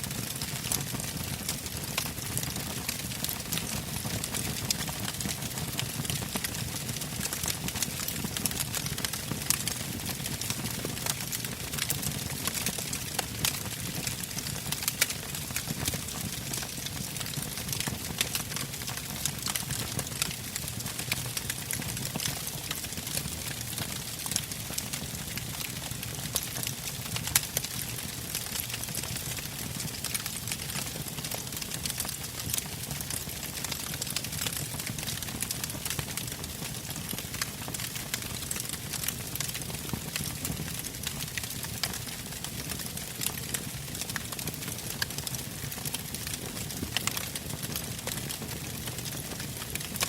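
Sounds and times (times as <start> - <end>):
wood fire crackling and popping: 0.0 - 50.0.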